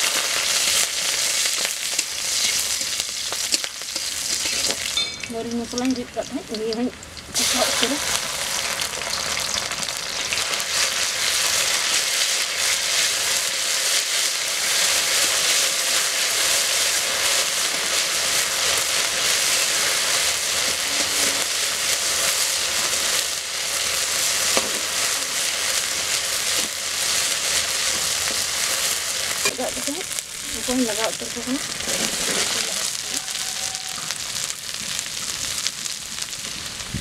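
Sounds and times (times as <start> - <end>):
paste sizzling in hot oil: 0.0 - 37.0
metal spatula scraping: 1.9 - 5.1, 20.7 - 21.6, 31.8 - 32.7.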